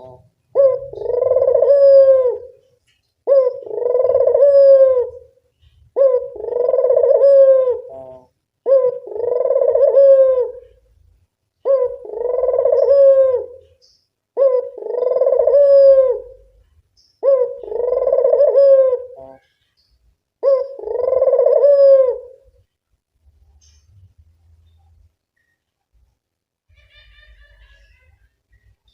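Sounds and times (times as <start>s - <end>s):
dove cooing: 0.0s - 2.6s, 3.2s - 10.9s, 11.6s - 19.6s, 20.4s - 22.6s.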